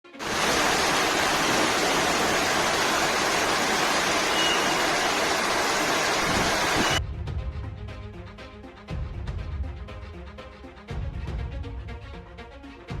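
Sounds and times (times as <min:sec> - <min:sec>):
loud rushing water: 0:00.0 - 0:07.0.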